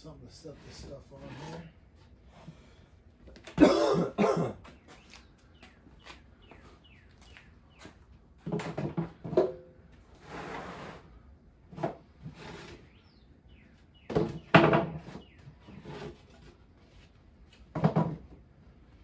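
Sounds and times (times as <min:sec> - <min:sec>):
scraping on bench: 0:00.5 - 0:02.8, 0:08.5 - 0:11.1, 0:11.7 - 0:13.0, 0:14.1 - 0:17.1
clunks and knocks on bench: 0:14.1 - 0:15.2, 0:17.7 - 0:18.4.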